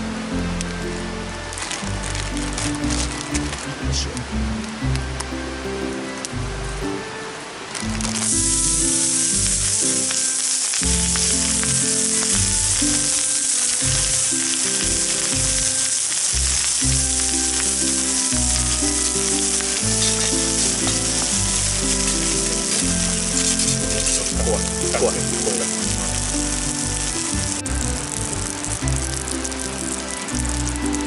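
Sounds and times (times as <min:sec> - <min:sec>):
food sizzling in oil: 0:09.0 - 0:28.5
music with stepping bass line: 0:10.8 - 0:13.2, 0:16.4 - 0:31.0.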